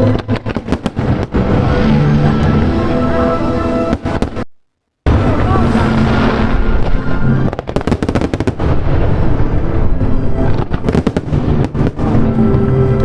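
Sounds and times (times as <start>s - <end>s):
fireworks sharp bangs: 0.0s - 2.8s, 3.8s - 4.5s, 5.1s - 13.0s.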